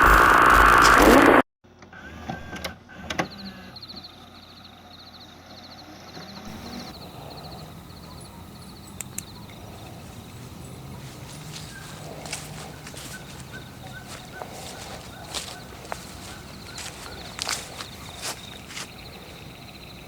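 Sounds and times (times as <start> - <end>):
sharp clicks: 8.9 - 9.6
footsteps crunching through leaves: 9.6 - 19.3.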